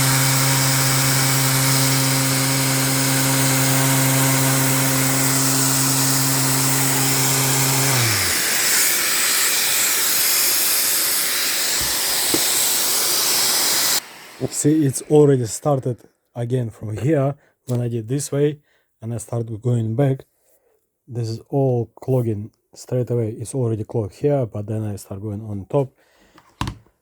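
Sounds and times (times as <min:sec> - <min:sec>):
electric sander running: 0:00.0 - 0:15.2.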